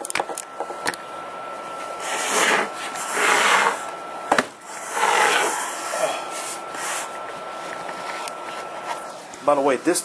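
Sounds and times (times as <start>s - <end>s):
casing scraping on surface: 2.0s - 3.9s, 4.7s - 9.2s.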